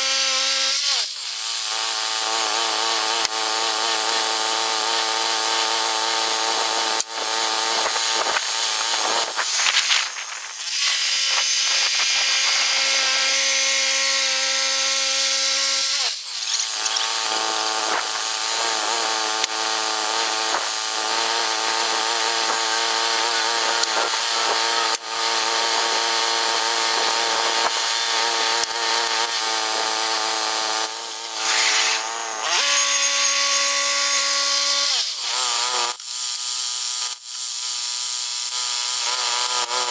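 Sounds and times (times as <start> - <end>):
band blade cutting log: 2.0 - 35.5.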